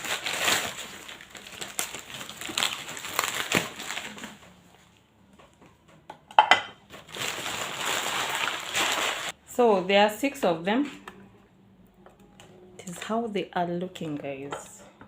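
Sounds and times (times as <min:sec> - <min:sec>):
packaging rustling and crinkling: 0:00.0 - 0:04.8, 0:06.9 - 0:09.4.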